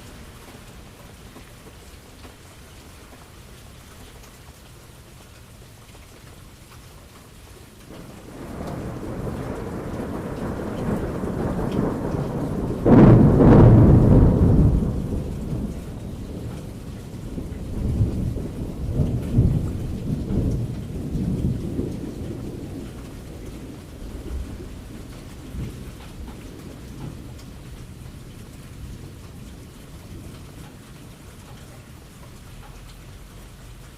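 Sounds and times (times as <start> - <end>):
steady rain: 0.0 - 33.9
thunder rumbling and cracking: 7.8 - 33.1.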